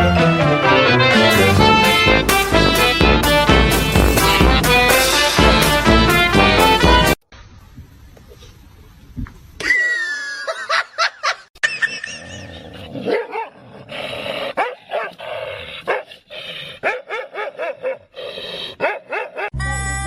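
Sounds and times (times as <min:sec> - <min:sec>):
dog barking: 0:13.1 - 0:13.6, 0:14.6 - 0:15.2, 0:15.9 - 0:16.1, 0:16.8 - 0:18.1, 0:18.8 - 0:19.5.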